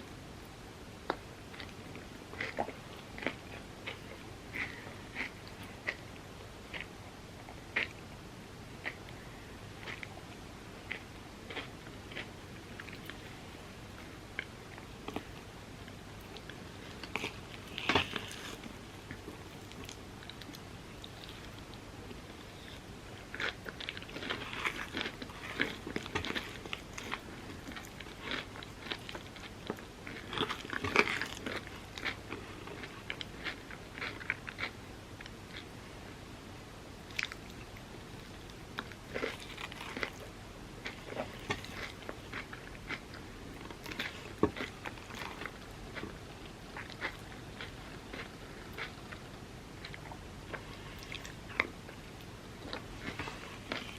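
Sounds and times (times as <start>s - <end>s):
crunchy bites and chewing: 16.3s - 21.8s, 22.6s - 34.8s, 38.8s - 46.2s.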